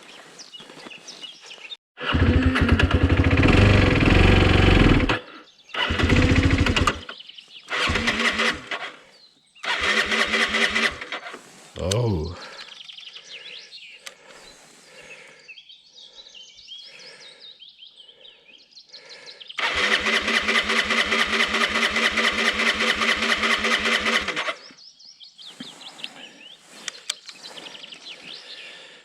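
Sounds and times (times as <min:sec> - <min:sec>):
birds chirping: 0:00.0 - 0:01.8, 0:05.2 - 0:29.0
motorcycle engine turning over: 0:02.0 - 0:05.2, 0:05.8 - 0:07.1, 0:07.7 - 0:08.9, 0:09.6 - 0:11.4, 0:19.6 - 0:24.6.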